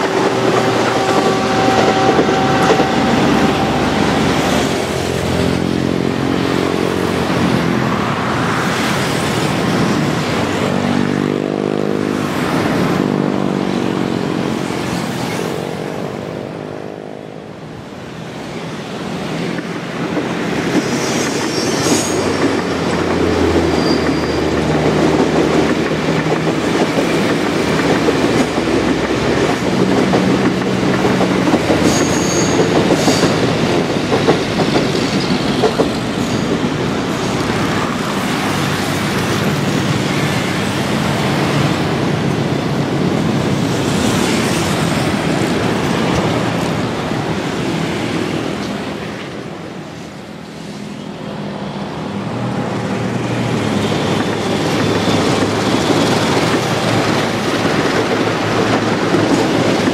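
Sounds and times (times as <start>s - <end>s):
train wheels clattering over rails: 0.0s - 7.8s, 19.0s - 49.6s, 52.6s - 59.9s
high wheel squeal: 20.8s - 22.5s, 23.4s - 24.8s, 31.8s - 33.6s.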